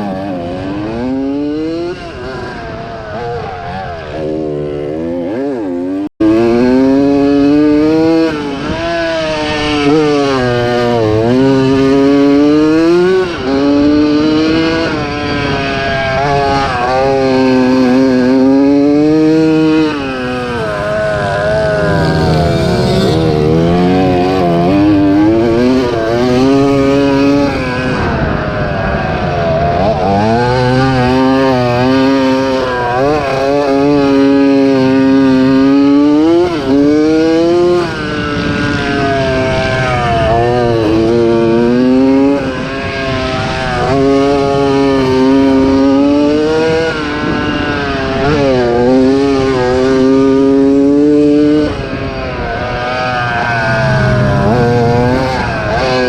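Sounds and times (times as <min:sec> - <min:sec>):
two-stroke motocross bike engine: 0:00.0 - 0:56.0.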